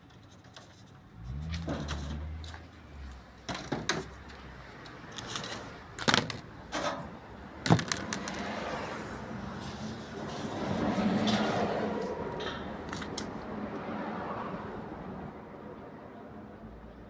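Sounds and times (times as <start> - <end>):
sharp clicks and knocks: 5.2 - 8.5.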